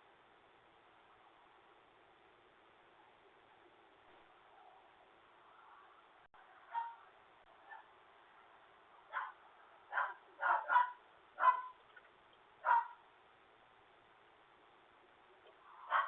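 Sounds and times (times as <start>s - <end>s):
muffled dogs barking: 6.6s - 8.0s, 9.1s - 11.8s, 12.6s - 13.0s, 15.7s - 16.0s.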